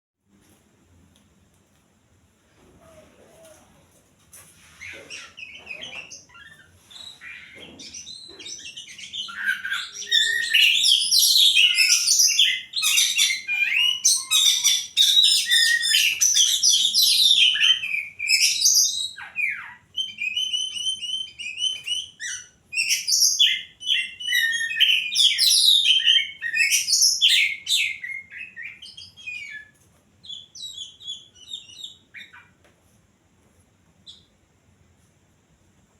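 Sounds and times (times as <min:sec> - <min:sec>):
songbird singing chirps and trills: 0:04.6 - 0:32.7.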